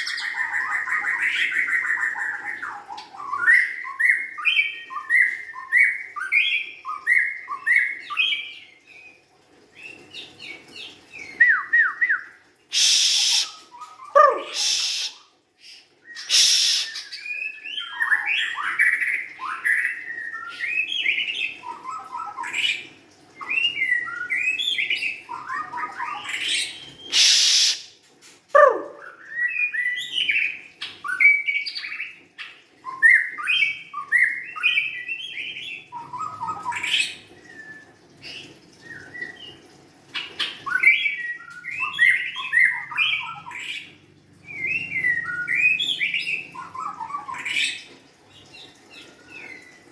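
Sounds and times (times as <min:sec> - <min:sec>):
harsh hissing bursts: 0:12.7 - 0:13.6, 0:14.5 - 0:15.2, 0:16.2 - 0:17.0, 0:27.2 - 0:28.0.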